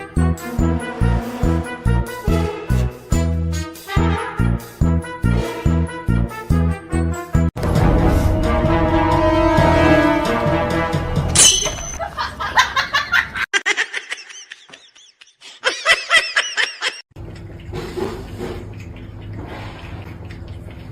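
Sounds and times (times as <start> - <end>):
background music: 0.0 - 12.0
laughter in quick pulses: 12.0 - 17.0.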